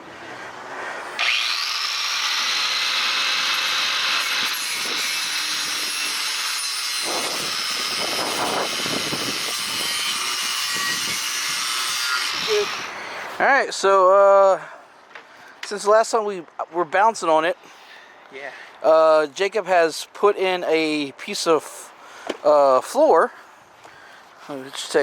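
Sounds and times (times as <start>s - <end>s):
angle grinder grinding steel: 1.2s - 13.0s.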